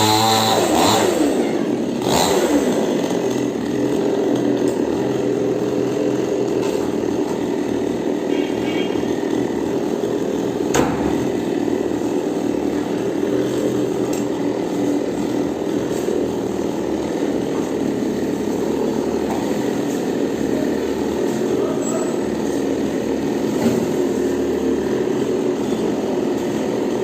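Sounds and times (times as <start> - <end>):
chainsaw engine running: 0.0 - 27.0.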